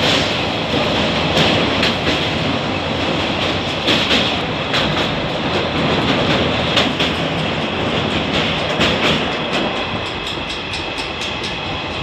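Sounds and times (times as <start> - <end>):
train rumbling over steel bridge: 0.0 - 12.0
train wheel clicks: 0.0 - 12.0.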